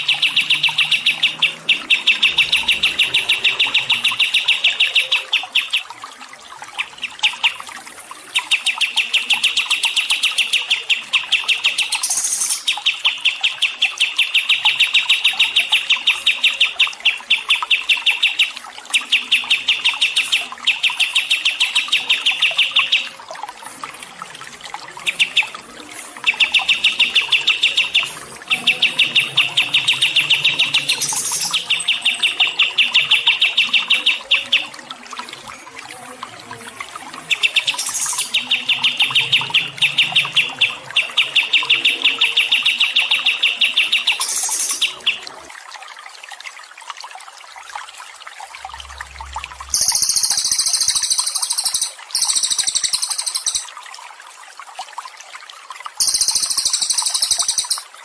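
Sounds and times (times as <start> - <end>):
songbird trilling: 0.0 - 5.8, 37.3 - 45.2, 49.8 - 53.7, 56.0 - 57.8.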